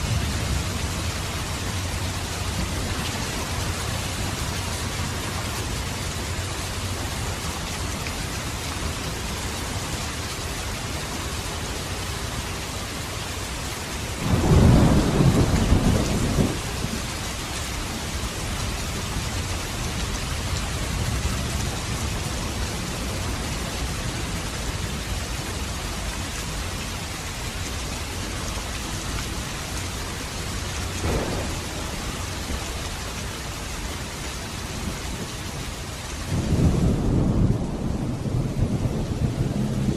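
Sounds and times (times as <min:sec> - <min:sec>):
steady rain falling: 0:00.0 - 0:39.9
thunder rumbling: 0:14.2 - 0:17.3, 0:31.0 - 0:33.2, 0:36.2 - 0:39.9.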